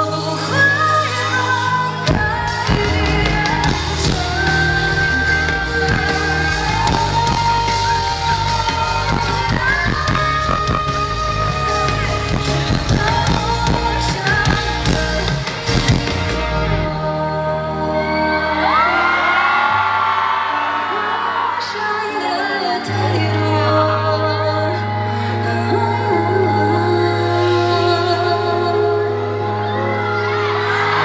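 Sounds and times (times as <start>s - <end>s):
long held melody line: 0.0s - 19.1s
drums: 0.0s - 23.3s, 29.2s - 31.0s
bass: 0.0s - 31.0s
live pop band: 0.0s - 31.0s.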